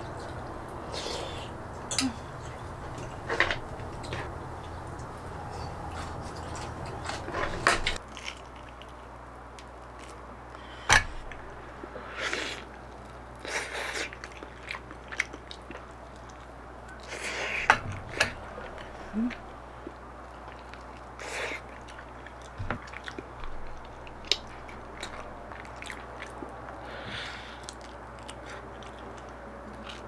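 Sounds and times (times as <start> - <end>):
person chewing food: 11.2 - 30.0.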